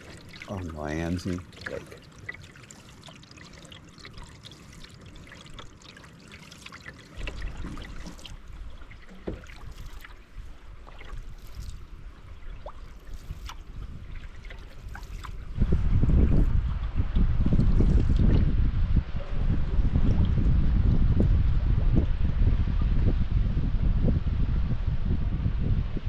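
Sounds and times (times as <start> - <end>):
water dripping off paddles: 0.0 - 16.5
small water splashes: 0.0 - 18.6.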